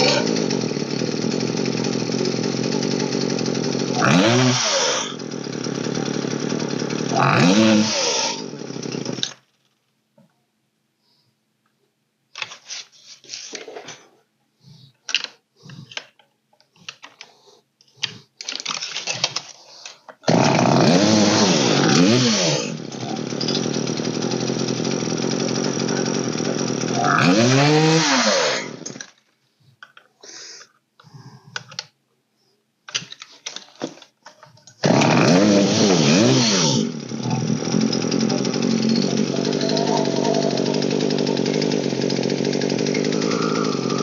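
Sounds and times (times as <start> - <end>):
chainsaw revving: 0.0 - 9.4, 20.2 - 29.1, 34.8 - 44.0.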